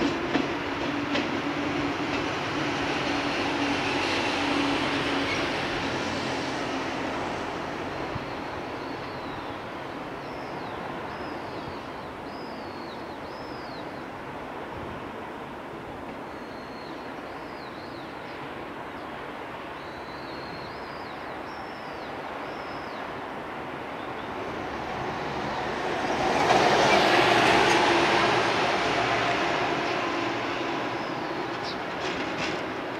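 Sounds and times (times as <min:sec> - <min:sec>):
train wheels rumbling: 0:00.0 - 0:09.4, 0:24.5 - 0:32.9.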